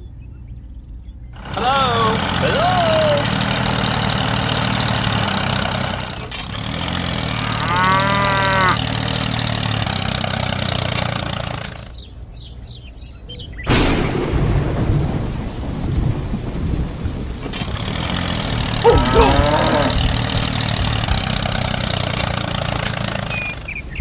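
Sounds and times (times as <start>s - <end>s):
loud rumbling noise: 1.4s - 12.0s, 13.7s - 24.0s
small engine running: 1.4s - 12.1s, 17.5s - 24.0s.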